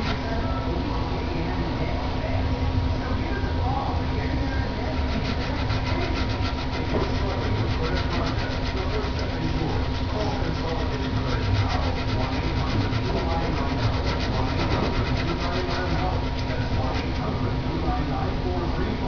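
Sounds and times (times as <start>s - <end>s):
steady hum: 0.0s - 19.0s
sanding strokes: 4.6s - 17.6s.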